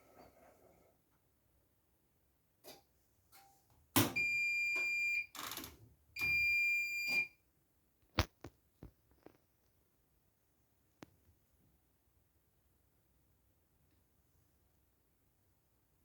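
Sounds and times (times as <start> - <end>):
washing machine electronic beeps: 4.1 - 5.3, 6.2 - 7.4.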